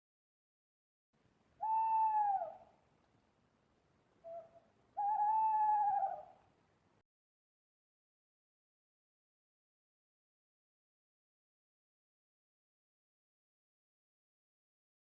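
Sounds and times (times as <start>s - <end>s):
owl hooting: 1.6s - 2.7s, 4.2s - 6.4s.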